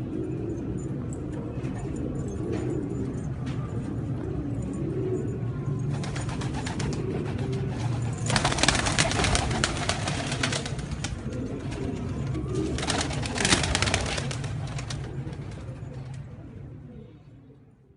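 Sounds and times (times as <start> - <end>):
pigeons cooing: 0.0 - 17.6
wings clattering and rustling: 5.9 - 16.2.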